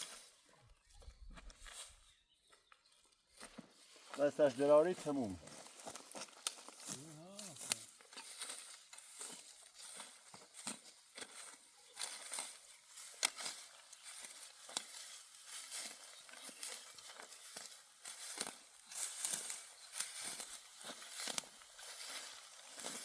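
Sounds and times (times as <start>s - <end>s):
dry stalks crackling and rustling: 0.0s - 23.0s
stalks snapping: 6.0s - 9.2s, 12.0s - 15.1s, 15.7s - 23.0s.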